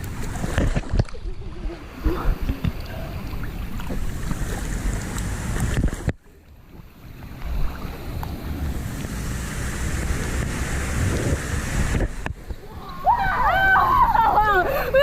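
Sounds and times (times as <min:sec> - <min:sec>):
rushing water: 0:00.0 - 0:15.0
wind buffeting microphone: 0:07.0 - 0:15.0.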